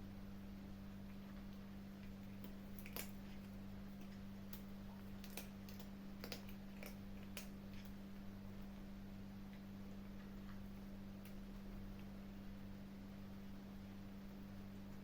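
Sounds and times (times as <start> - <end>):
steady low hum: 0.0 - 15.0
kittens crunching food: 0.9 - 12.4.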